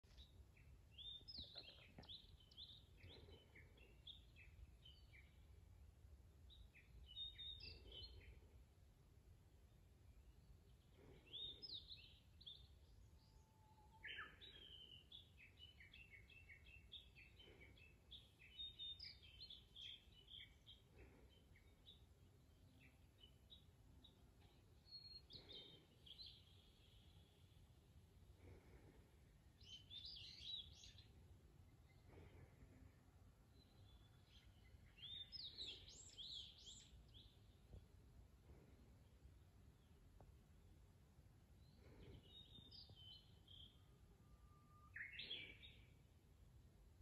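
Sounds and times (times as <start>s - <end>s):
birds chirping and warbling: 0.1s - 5.4s, 6.5s - 8.4s, 14.0s - 27.7s, 33.5s - 37.7s, 41.6s - 43.9s.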